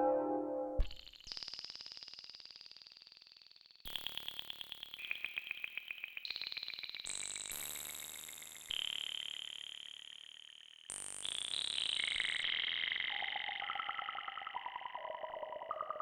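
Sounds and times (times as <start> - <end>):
bell-like synth notes: 0.0 - 1.0.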